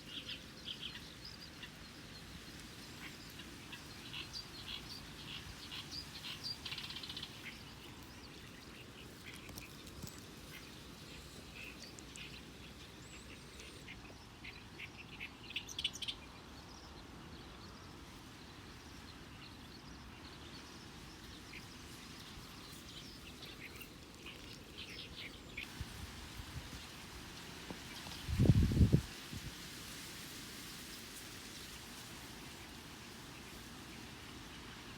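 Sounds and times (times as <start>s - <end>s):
birds chirping: 0.0s - 17.0s, 18.8s - 25.8s
low outdoor background: 0.0s - 34.9s.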